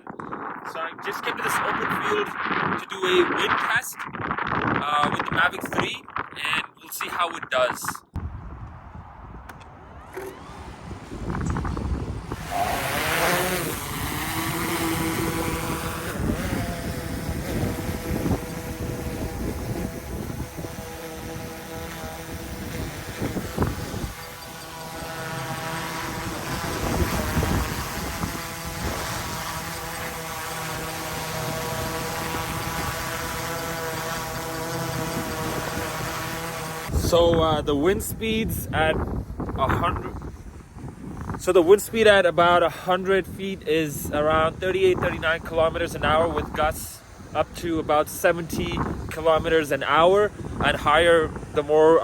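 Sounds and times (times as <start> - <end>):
wind buffeting microphone: 0.0 - 52.0
drone propellers whining: 9.0 - 37.3.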